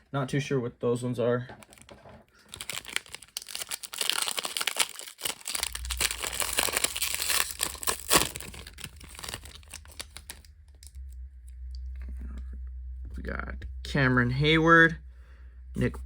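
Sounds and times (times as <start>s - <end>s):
cards rustling: 1.6s - 10.5s
foil wrapper tearing and crinkling: 1.6s - 10.5s.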